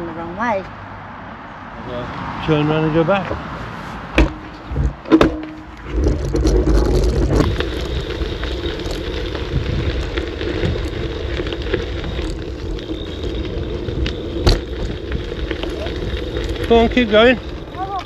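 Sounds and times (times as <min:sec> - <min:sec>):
tyres rumbling on road: 0:00.0 - 0:18.0
sharp knock: 0:04.1 - 0:05.7
wind rush on microphone: 0:05.8 - 0:18.0.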